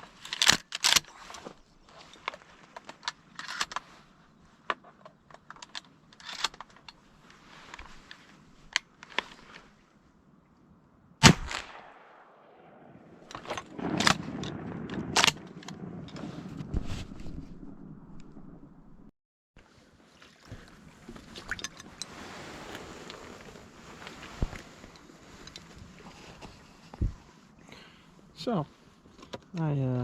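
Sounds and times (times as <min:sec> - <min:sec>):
clicks and rattles of gear: 0:00.0 - 0:09.8, 0:13.2 - 0:17.4
rustling: 0:00.0 - 0:10.1, 0:13.2 - 0:19.0, 0:19.6 - 0:29.4
shotgun shot with echo: 0:11.2 - 0:14.4.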